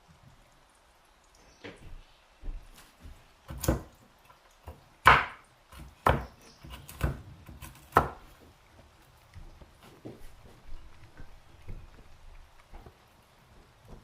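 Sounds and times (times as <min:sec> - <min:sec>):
knife chopping on wooden board: 0:03.5 - 0:04.0, 0:04.7 - 0:08.3.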